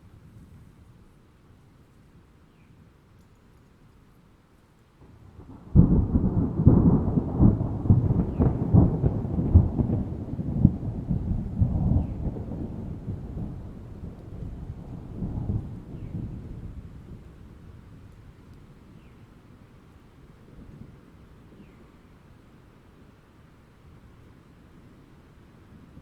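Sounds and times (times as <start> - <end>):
thunder clap and rumble: 5.2 - 18.1.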